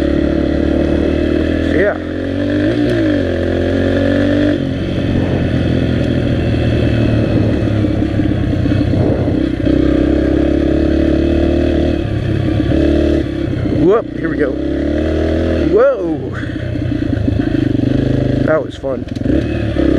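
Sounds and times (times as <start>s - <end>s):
dirt bike engine revving: 0.0s - 19.9s.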